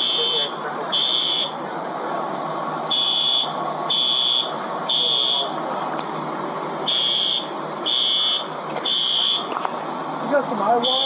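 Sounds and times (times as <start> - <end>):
fire alarm beeping: 0.0 - 1.6, 2.8 - 5.6, 6.8 - 9.5, 10.8 - 11.0.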